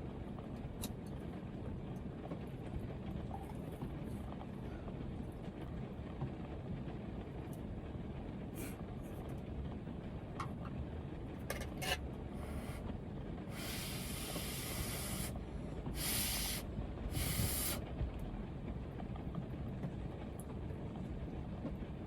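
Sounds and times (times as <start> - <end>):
heavy rain on a van: 0.0 - 22.0
slurping noodles: 17.2 - 17.8.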